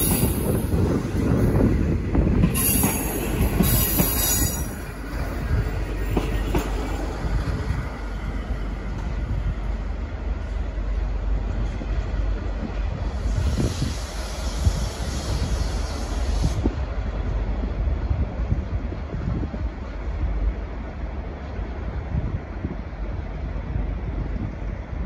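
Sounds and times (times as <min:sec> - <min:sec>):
train wheels rumbling on track: 0:00.0 - 0:25.0
hiss: 0:13.0 - 0:16.8.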